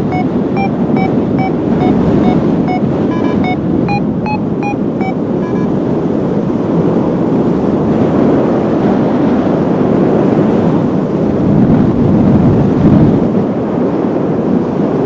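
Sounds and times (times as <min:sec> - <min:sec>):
short electronic beeps: 0:00.0 - 0:05.8
wind buffeting microphone: 0:00.0 - 0:15.0.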